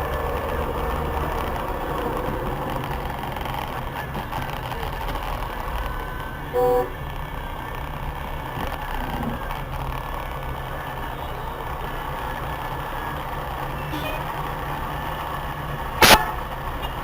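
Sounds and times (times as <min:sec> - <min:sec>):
city traffic noise: 0:00.0 - 0:17.0
vehicle horn beep: 0:05.8 - 0:07.0, 0:13.8 - 0:14.3, 0:16.0 - 0:17.0.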